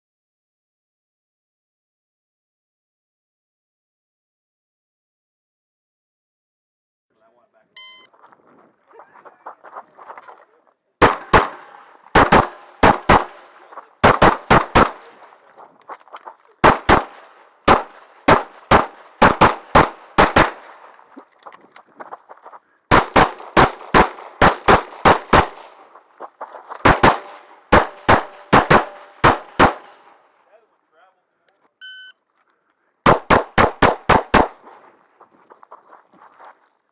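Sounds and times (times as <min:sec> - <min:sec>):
pistol firing rapidly: 0:11.0 - 0:21.2, 0:22.9 - 0:30.4, 0:33.0 - 0:35.1.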